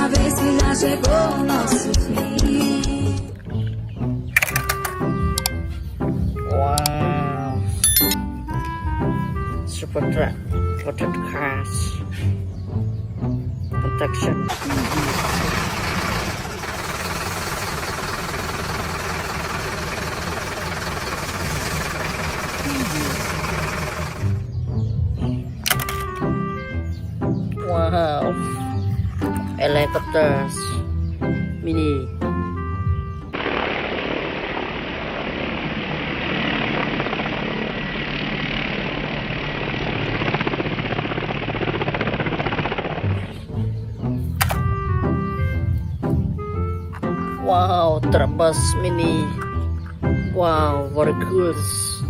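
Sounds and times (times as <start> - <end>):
helicopter rotor and engine: 14.5 - 24.5, 33.4 - 43.2
motor rumbling with hiss: 14.5 - 24.5, 33.4 - 43.7.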